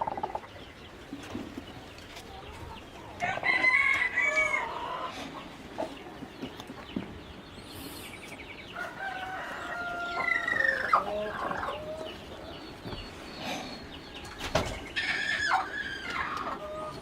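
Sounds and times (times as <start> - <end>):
chickens clucking: 0.0 - 17.0
rooster crowing: 3.2 - 4.8, 8.8 - 11.0.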